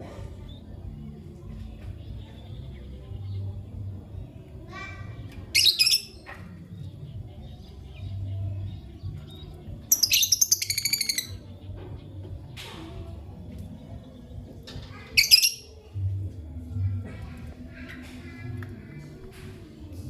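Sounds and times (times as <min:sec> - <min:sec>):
lovebird chirping: 0:09.9 - 0:11.4, 0:15.2 - 0:15.8.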